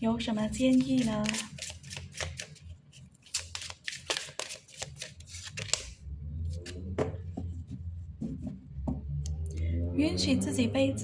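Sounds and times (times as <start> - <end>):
cards shuffling: 0.7 - 6.0
soft card rustles and taps: 1.0 - 2.5, 3.2 - 5.9.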